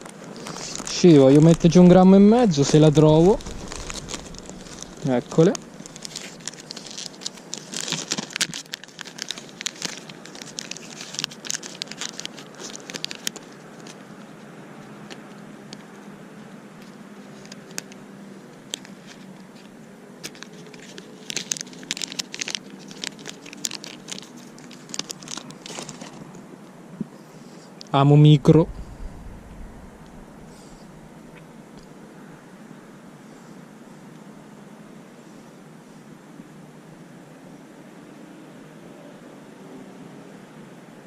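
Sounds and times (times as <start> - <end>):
plastic crinkling and clicking: 0.0 - 14.4, 16.8 - 26.4.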